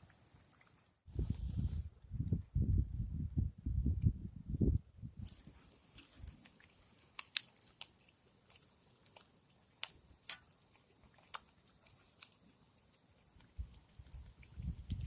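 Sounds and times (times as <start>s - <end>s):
fish deep-frying in grease: 0.0s - 1.1s, 5.3s - 15.0s
grease popping and crackling: 0.0s - 1.1s, 5.2s - 15.0s.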